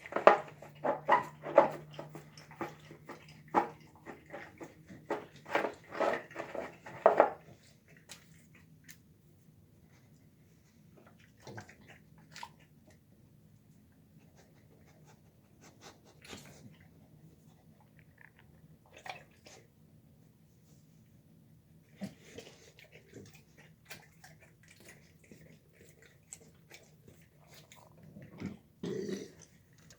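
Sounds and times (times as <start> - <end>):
dog crunching food: 0.0 - 9.0, 22.4 - 29.9.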